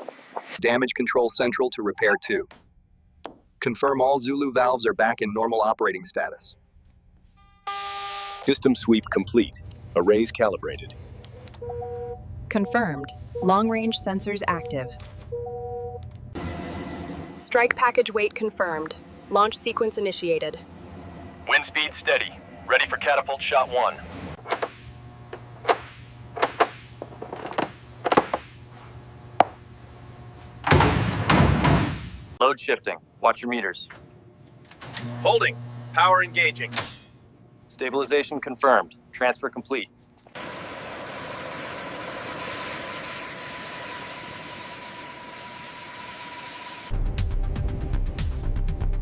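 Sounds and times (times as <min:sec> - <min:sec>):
faint constant whine: 0:04.5 - 0:31.3
steady low hum: 0:08.5 - 0:46.5
machinery hum and hiss: 0:40.2 - 0:46.9.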